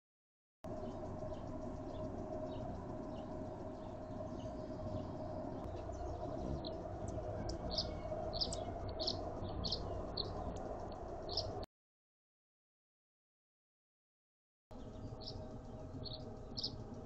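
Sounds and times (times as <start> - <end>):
bird chirping: 0.7 - 11.6, 14.7 - 17.0
faint hum: 0.7 - 11.7, 14.7 - 17.0.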